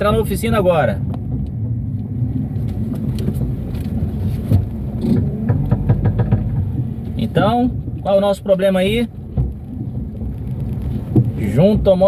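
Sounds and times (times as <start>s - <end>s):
car engine rumble: 0.0s - 12.0s
light clicks and knocks: 1.0s - 7.2s.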